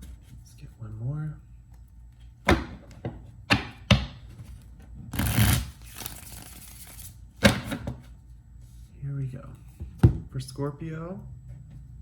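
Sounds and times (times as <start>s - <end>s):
cards shuffling: 5.2s - 7.2s.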